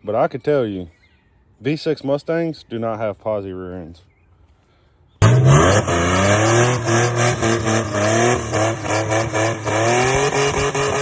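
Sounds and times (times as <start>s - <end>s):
car engine revving: 5.2s - 11.0s.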